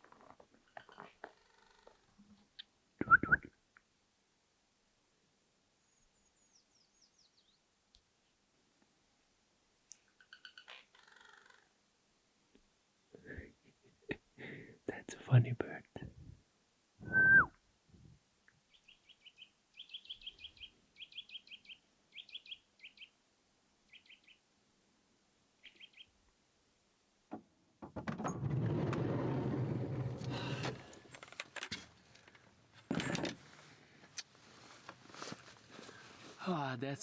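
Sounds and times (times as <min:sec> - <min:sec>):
small bird chirping: 0:09.9 - 0:11.7, 0:18.7 - 0:23.2, 0:23.9 - 0:24.4, 0:25.6 - 0:26.2
knocks: 0:27.3 - 0:29.0
rough rumbling noise: 0:27.9 - 0:31.2.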